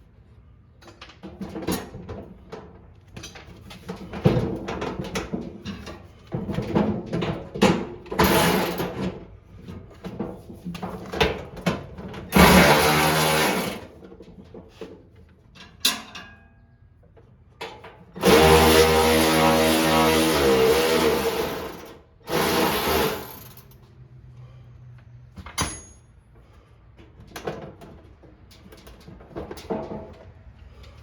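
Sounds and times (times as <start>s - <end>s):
handheld power tool running: 8.2s - 9.0s, 12.3s - 13.9s, 18.2s - 23.7s
clicks and knocks of handling parts: 14.0s - 18.2s.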